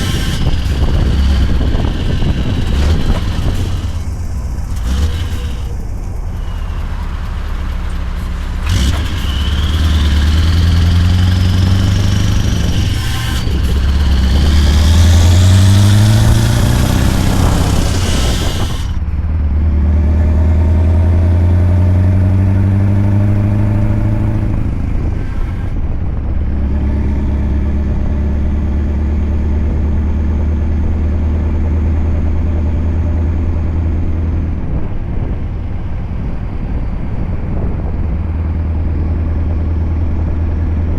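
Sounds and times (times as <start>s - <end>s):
truck engine pulling through gears: 0.0s - 40.9s.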